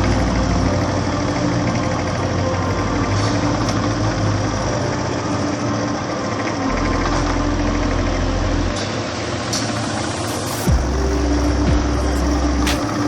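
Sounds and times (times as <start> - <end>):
motorcycle engine idling: 10.7 - 13.0.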